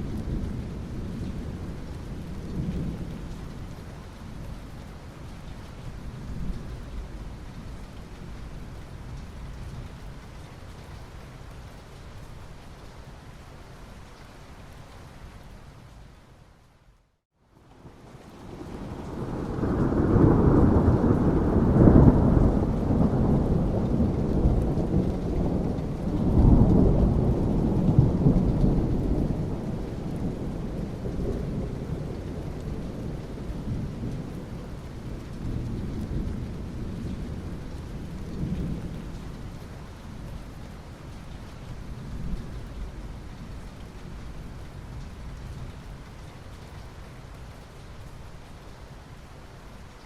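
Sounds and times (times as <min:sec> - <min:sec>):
steady rain: 0:00.0 - 0:50.0
thunder rumbling: 0:18.4 - 0:39.2.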